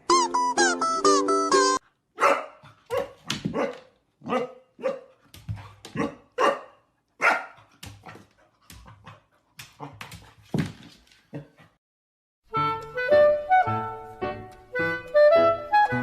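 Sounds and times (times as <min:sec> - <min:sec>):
dog barking: 0:02.2 - 0:05.2, 0:05.9 - 0:07.7.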